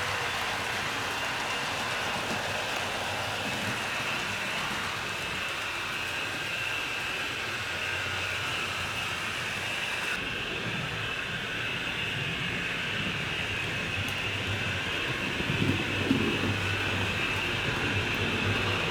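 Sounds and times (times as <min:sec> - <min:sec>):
model train motor whirring: 0:00.0 - 0:10.2.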